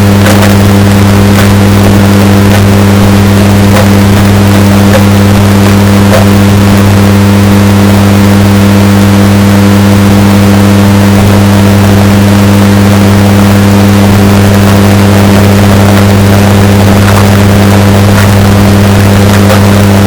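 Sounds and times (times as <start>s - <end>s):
distorted washing machine hum: 0.0s - 20.0s.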